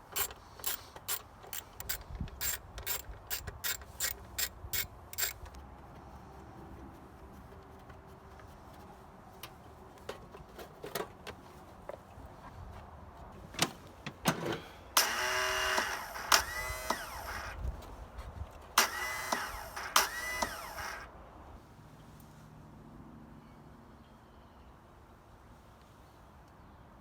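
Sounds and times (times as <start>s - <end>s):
lawnmower engine cranking whine: 0.0s - 5.6s, 14.3s - 17.7s, 18.8s - 21.1s.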